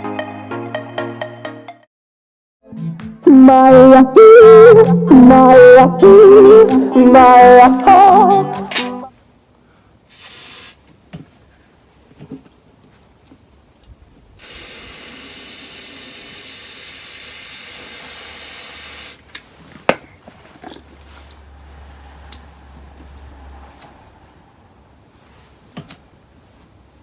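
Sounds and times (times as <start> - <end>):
compressed gas hissing: 10.1 - 10.9, 14.4 - 19.3.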